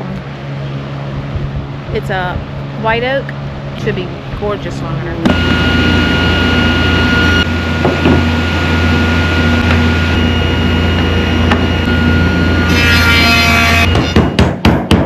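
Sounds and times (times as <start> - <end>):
machine humming and whining: 0.0 - 14.7
harsh high-pitched machine sound: 4.6 - 14.5.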